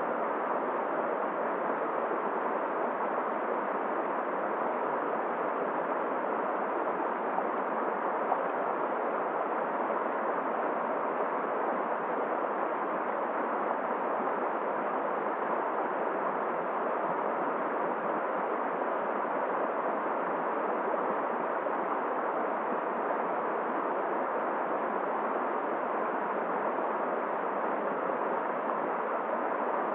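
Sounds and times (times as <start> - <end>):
wind: 0.0 - 29.9.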